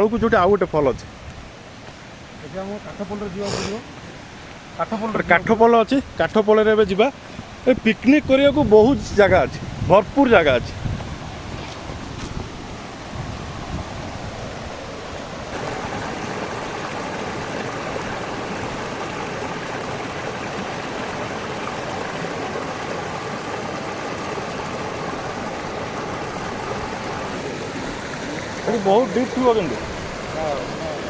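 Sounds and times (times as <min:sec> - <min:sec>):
waterfall rushing: 0:11.2 - 0:31.0.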